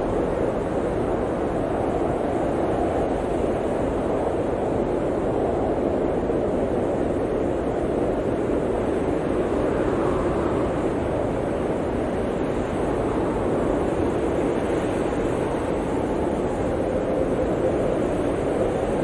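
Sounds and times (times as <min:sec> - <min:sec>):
blizzard wind rushing: 0:00.0 - 0:19.0
faint wind whistle: 0:00.0 - 0:19.0.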